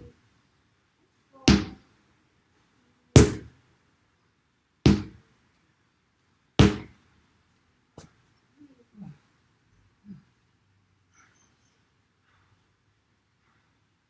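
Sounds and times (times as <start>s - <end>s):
sledgehammer thudding on tyre: 1.5s - 1.8s, 3.2s - 3.5s, 4.9s - 5.2s, 6.6s - 7.0s.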